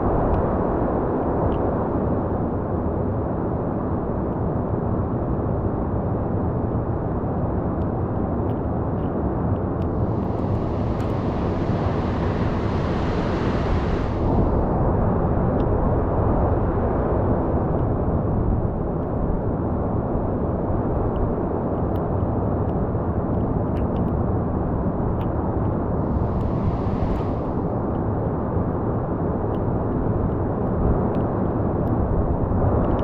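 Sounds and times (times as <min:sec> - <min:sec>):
wind: 0:00.0 - 0:33.0
storm surf roaring: 0:09.8 - 0:16.7, 0:25.7 - 0:28.2
hissing wash of breaking water: 0:09.9 - 0:15.1, 0:25.9 - 0:27.8.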